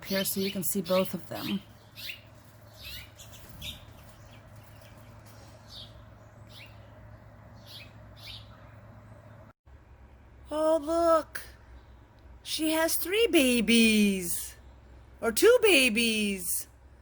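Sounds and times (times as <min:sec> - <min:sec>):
finches chirping: 0:00.0 - 0:06.9, 0:07.6 - 0:08.6
low steady hum: 0:00.0 - 0:17.0.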